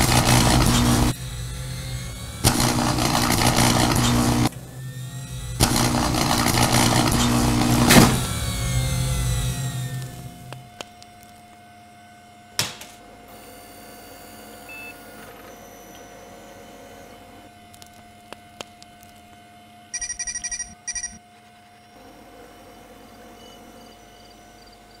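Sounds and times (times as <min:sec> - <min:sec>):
electrical hum: 0:00.0 - 0:25.0
balloon bursting: 0:05.6 - 0:08.4
rapid electronic beeps: 0:20.0 - 0:21.2.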